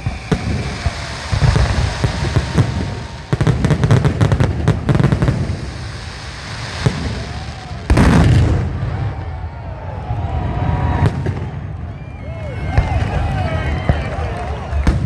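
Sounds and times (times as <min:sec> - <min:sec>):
fireworks crackling pops: 0:00.0 - 0:08.8
fireworks booms: 0:00.0 - 0:12.0, 0:12.7 - 0:15.0.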